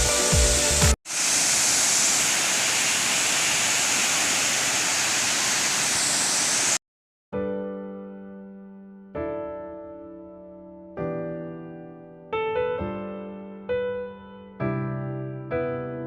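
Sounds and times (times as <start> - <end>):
music: 0.0 - 1.0, 7.4 - 16.0
waterfall rushing: 0.4 - 6.8.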